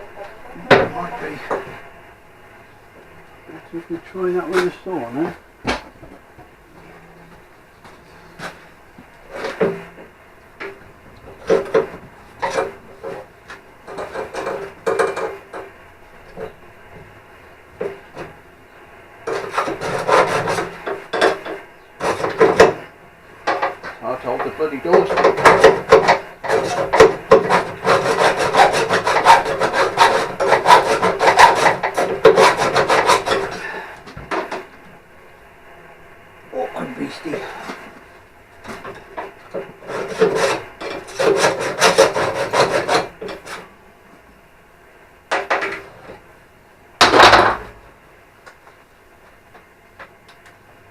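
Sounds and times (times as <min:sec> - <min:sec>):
hacksaw cutting steel: 0:19.3 - 0:22.8, 0:24.9 - 0:33.7, 0:39.8 - 0:43.6.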